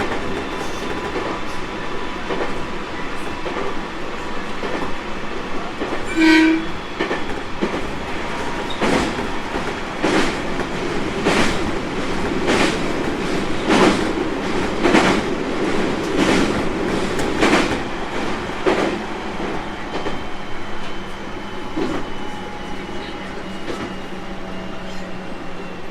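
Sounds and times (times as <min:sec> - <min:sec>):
train wheels clicking over rail joints: 0:06.9 - 0:20.2.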